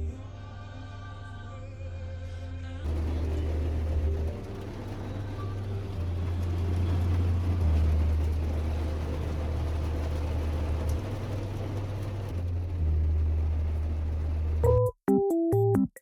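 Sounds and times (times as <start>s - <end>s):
car road rumble: 2.8s - 14.8s.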